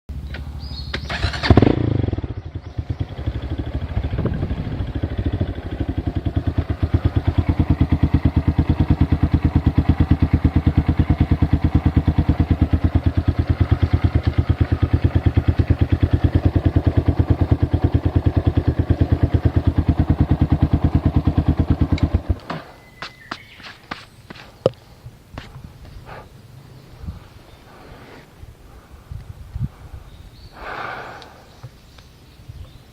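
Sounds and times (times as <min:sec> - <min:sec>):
small engine idling: 0:00.2 - 0:23.6.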